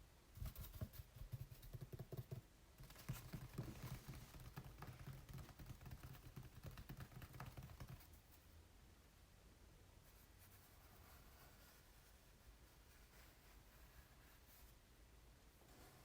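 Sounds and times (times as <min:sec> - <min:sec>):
fingers tapping on canvas: 0:00.6 - 0:08.2.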